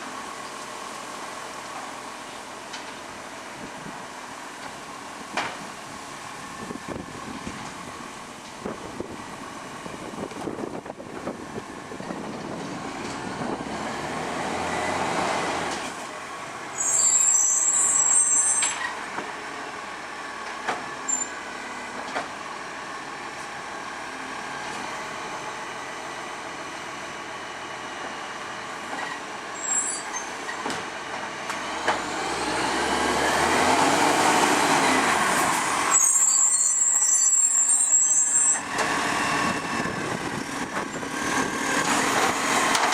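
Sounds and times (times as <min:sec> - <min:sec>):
truck engine revving: 0:12.8 - 0:15.8, 0:31.5 - 0:35.9, 0:38.6 - 0:42.9.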